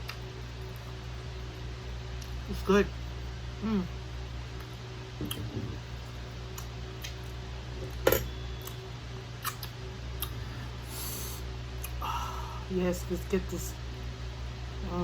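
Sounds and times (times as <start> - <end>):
steady low hum: 0.0 - 15.0
person chewing with lip smacks: 4.6 - 5.5, 9.4 - 10.4, 11.8 - 12.0.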